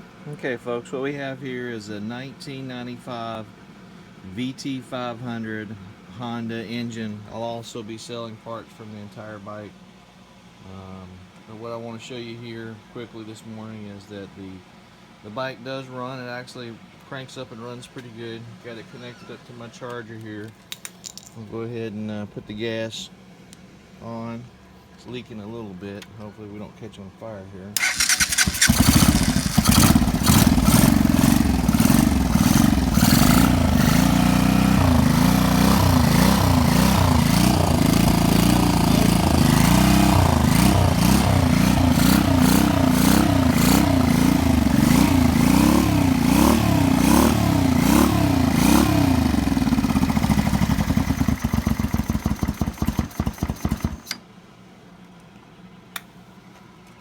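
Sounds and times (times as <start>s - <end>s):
motorcycle engine revving: 27.8s - 54.1s.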